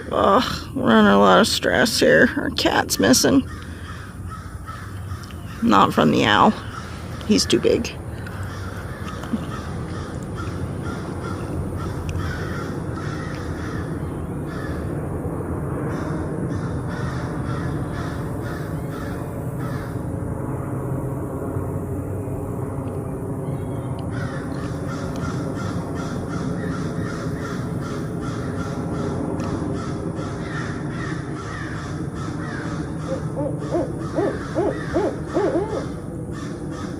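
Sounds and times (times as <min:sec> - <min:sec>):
owls hooting and calling: 0:29.8 - 0:36.9.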